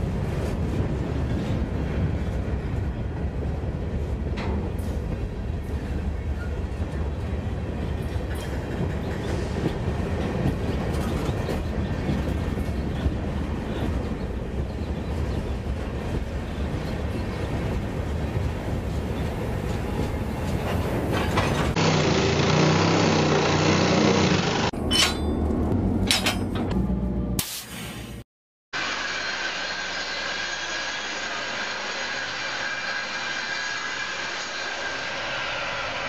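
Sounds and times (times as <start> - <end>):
rail car rumbling: 0.0 - 28.2.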